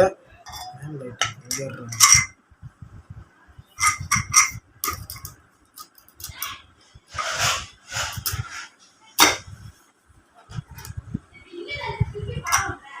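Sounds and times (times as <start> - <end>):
metal parts clinking: 1.5 - 2.3, 3.8 - 6.3
metal scrape: 3.8 - 5.0, 7.1 - 9.6.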